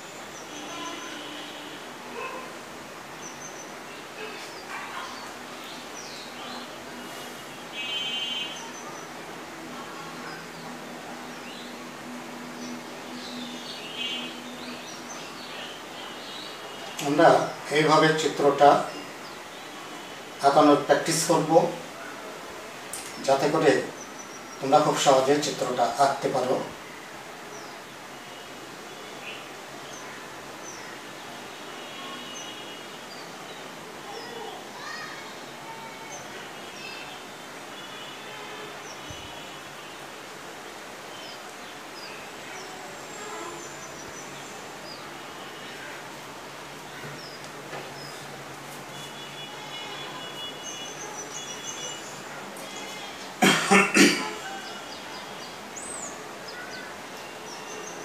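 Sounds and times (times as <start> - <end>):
background hiss: 0.0 - 58.0
birds chirping: 0.0 - 58.0
faint high bird chirps: 0.4 - 2.5.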